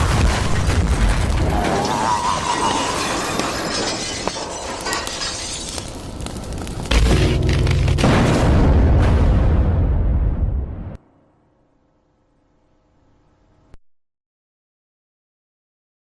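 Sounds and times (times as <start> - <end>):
crashing shattering noise: 0.0 - 10.0
loud low boom: 6.9 - 11.0.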